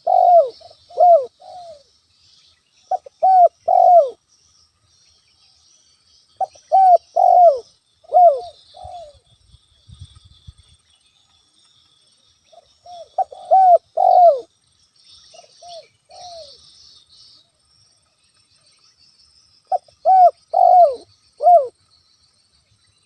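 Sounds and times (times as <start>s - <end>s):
dove cooing: 0.0s - 1.9s, 2.9s - 4.2s, 6.4s - 9.2s, 12.5s - 14.5s, 15.4s - 16.6s, 19.7s - 21.7s.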